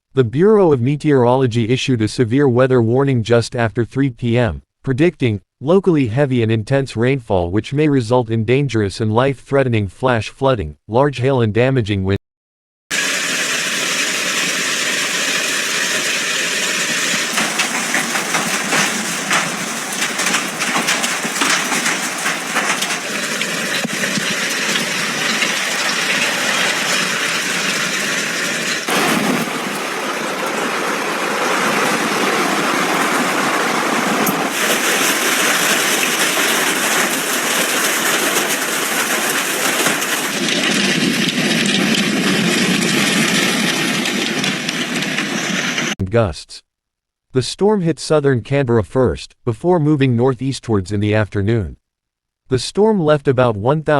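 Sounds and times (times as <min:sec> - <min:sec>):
heavy rain hissing: 0:13.0 - 0:40.7
hailstones clicking: 0:13.0 - 0:45.4.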